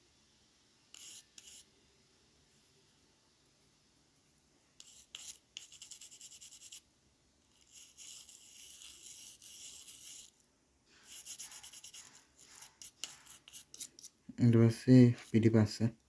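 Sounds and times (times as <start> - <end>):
brush scrubbing circuit board: 0.9 - 1.7, 4.8 - 6.8, 7.5 - 10.4, 11.0 - 14.2.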